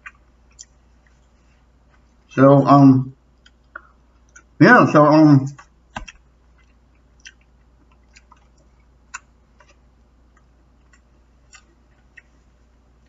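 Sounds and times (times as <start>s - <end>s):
faint chewing: 0.0s - 2.3s, 3.3s - 4.6s, 5.5s - 13.0s.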